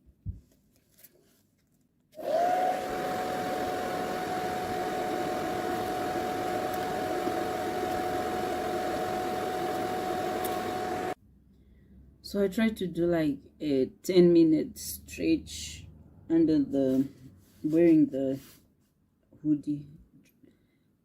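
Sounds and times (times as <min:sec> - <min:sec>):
hair dryer fan whirring: 0:02.2 - 0:11.2.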